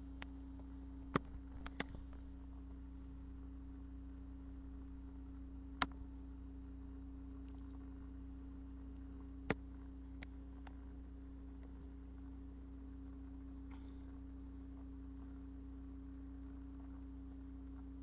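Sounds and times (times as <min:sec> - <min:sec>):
low electrical hum: 0:00.0 - 0:18.0
sharp clicks: 0:01.1 - 0:02.0.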